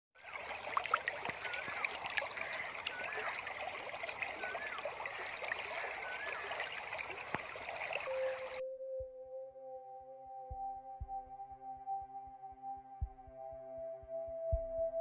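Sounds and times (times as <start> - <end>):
bird call: 0.2 - 8.6
water trickling and babbling: 0.2 - 8.6.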